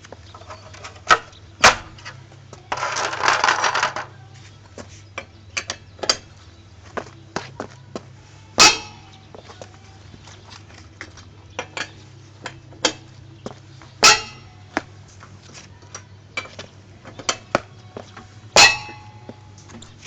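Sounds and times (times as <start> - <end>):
metal tools clanking: 0.3 - 4.2, 8.6 - 9.6, 10.3 - 20.0
steady low hum: 4.1 - 20.0.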